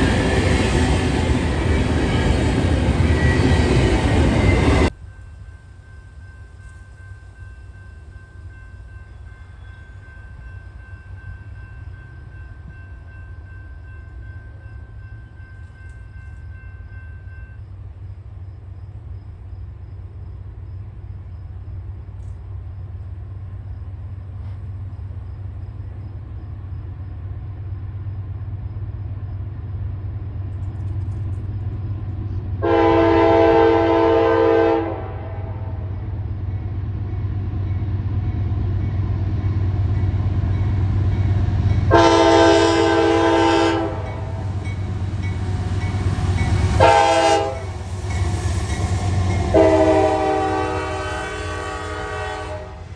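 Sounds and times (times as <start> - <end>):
diesel train rumble: 0.0 - 52.9
train horn chord: 32.6 - 35.9, 41.9 - 44.6, 46.4 - 48.3, 49.0 - 52.9.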